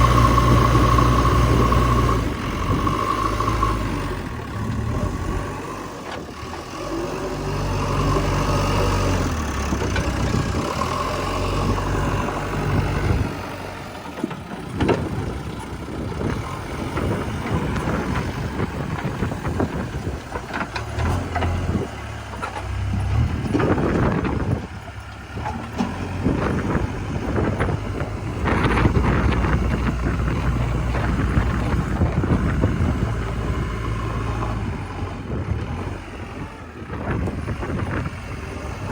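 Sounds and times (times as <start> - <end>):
diesel digger engine: 0.0 - 38.9
knocks and clatter: 14.0 - 33.4.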